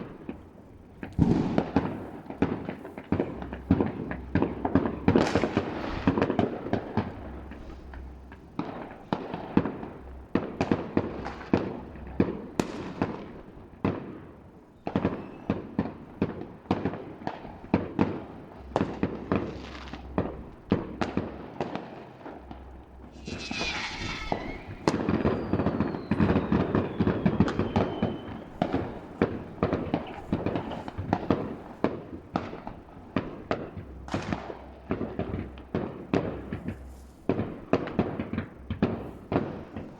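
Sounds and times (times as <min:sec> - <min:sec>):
distant fireworks bangs: 0:00.0 - 0:39.9
firework crackling: 0:00.0 - 0:39.9
falling whistle: 0:23.1 - 0:29.1.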